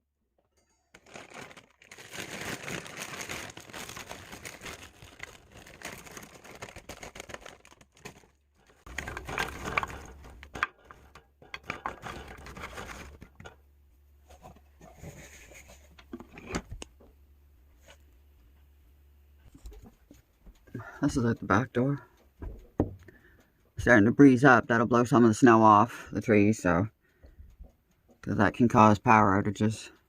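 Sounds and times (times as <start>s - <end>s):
plastic bag crinkling: 0.8s - 13.6s.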